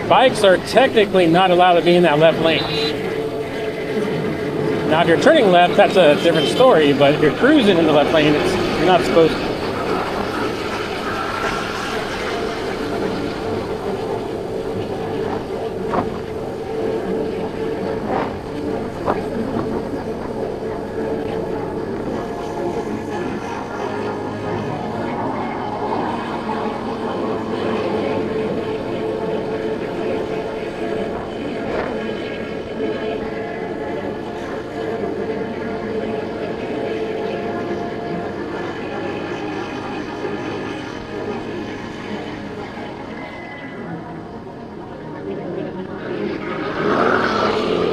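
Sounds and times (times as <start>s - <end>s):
wind noise: 0.0s - 34.9s
road and traffic noise: 0.0s - 35.0s
scooter engine cruising: 0.0s - 43.1s.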